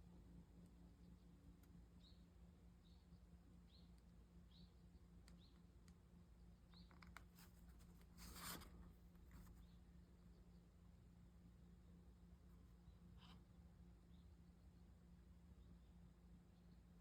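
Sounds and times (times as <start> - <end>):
low steady hum: 0.0 - 17.0
brief scrape: 7.4 - 9.6.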